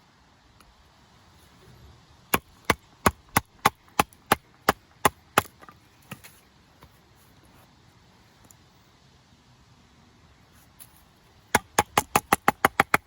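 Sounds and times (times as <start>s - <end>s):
knife chopping wood: 11.5s - 13.0s.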